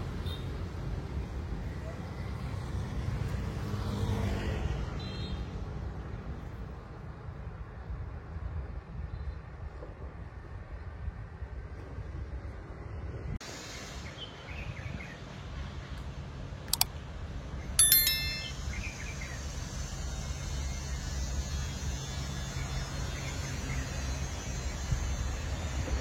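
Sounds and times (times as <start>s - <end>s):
sharp click: 16.7s - 16.9s
metallic chime: 17.8s - 18.8s.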